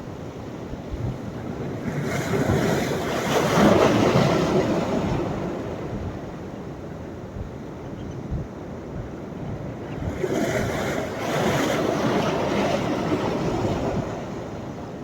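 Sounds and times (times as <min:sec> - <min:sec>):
sea waves breaking on shore: 0:00.0 - 0:06.6, 0:09.6 - 0:15.0.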